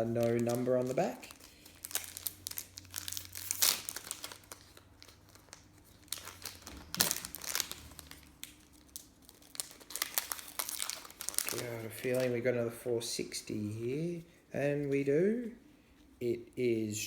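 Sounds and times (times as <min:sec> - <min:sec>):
wrapper crinkling and rustling: 0:00.0 - 0:12.5.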